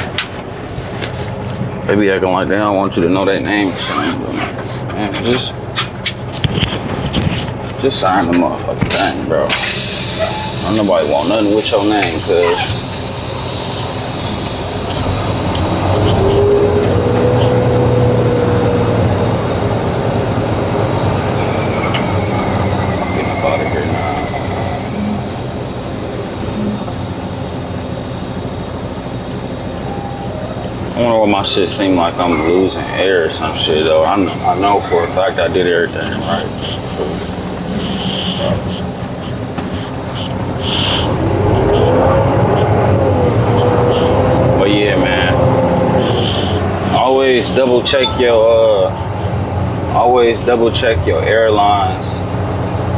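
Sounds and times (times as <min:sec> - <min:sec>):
truck diesel engine rumbling: 0:00.0 - 0:52.9
brief squeal: 0:08.9 - 0:42.2, 0:46.0 - 0:47.0
constant high hiss: 0:09.6 - 0:42.8, 0:43.4 - 0:52.9.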